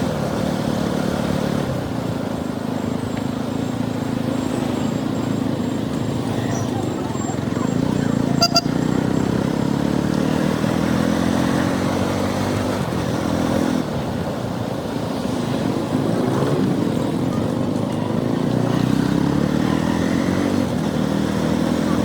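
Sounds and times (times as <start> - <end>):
motorcycle engine running: 0.0 - 22.0
short high-pitched beep: 8.4 - 8.8.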